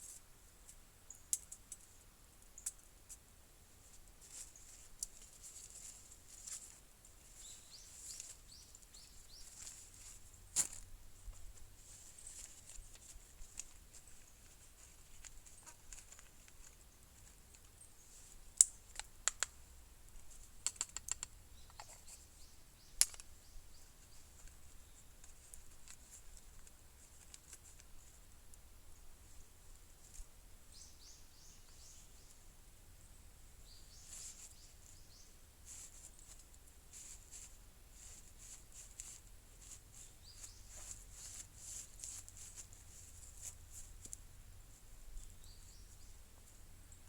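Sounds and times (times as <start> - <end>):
faint high bird chirps: 1.0 - 1.3, 7.3 - 9.8, 30.7 - 32.4, 33.0 - 35.4, 40.0 - 41.0
small wood fire crackling: 3.8 - 21.9.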